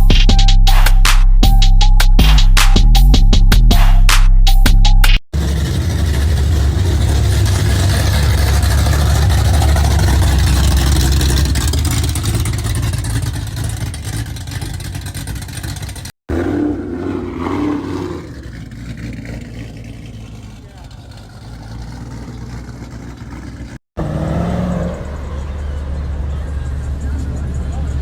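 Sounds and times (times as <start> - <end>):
car engine and exhaust: 5.3 - 28.0.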